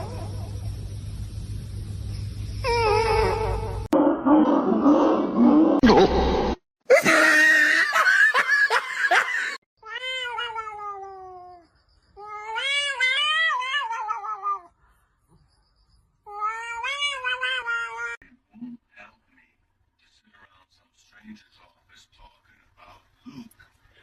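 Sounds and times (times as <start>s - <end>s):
cat meowing: 9.8s - 11.6s, 16.3s - 18.2s.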